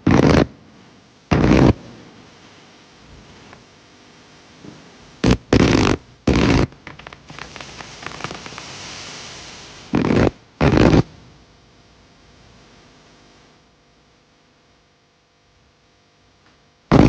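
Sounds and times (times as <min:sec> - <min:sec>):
fireworks blasts: 0:00.0 - 0:00.6, 0:01.3 - 0:02.2, 0:04.7 - 0:11.2
fireworks crackling: 0:00.0 - 0:00.6, 0:01.3 - 0:02.2, 0:04.6 - 0:11.2.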